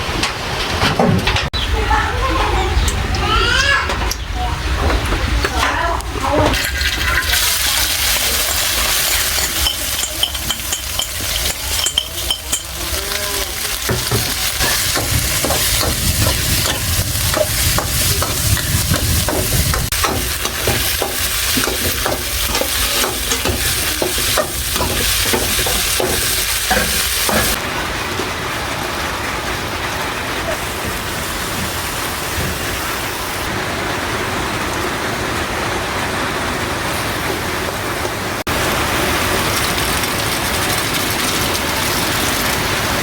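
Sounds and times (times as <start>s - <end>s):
snails sizzling in a pan: 6.6s - 27.6s, 38.5s - 43.0s.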